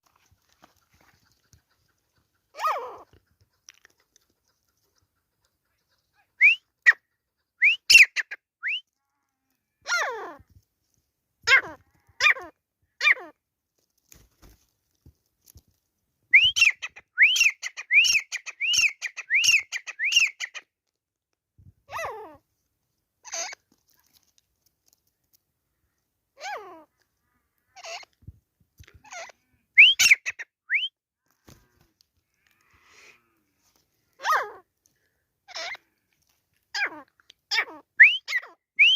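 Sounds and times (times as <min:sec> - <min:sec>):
francolin calling: 0:16.4 - 0:20.6, 0:29.8 - 0:30.9, 0:38.0 - 0:38.9.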